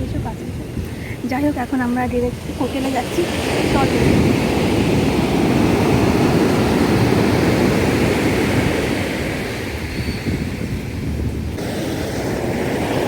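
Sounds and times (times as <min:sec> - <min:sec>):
sea surf rushing: 0:00.0 - 0:13.0
wind buffeting microphone: 0:00.0 - 0:13.0.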